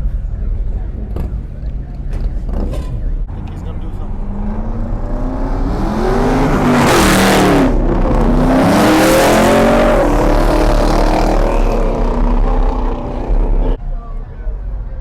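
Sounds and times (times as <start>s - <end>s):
car engine revving: 2.2s - 13.8s.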